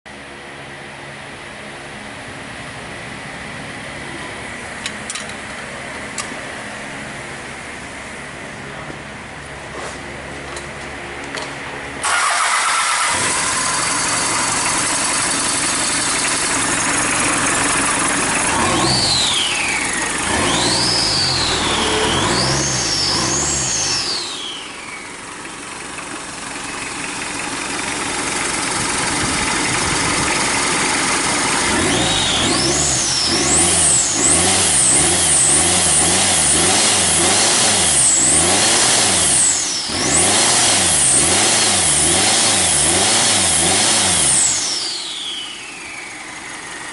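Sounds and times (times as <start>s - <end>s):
diesel engine revving: 12.0s - 46.9s.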